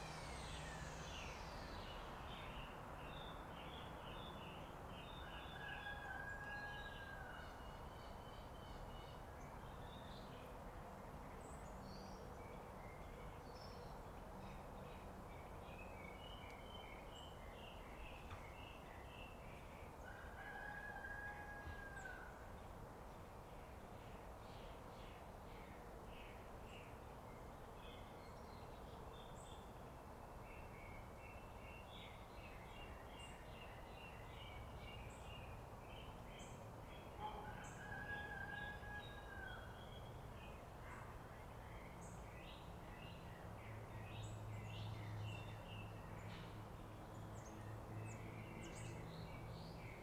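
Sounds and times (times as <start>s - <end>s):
steady whine: 0.0s - 2.3s
rooster crowing: 20.2s - 22.3s, 37.2s - 39.7s.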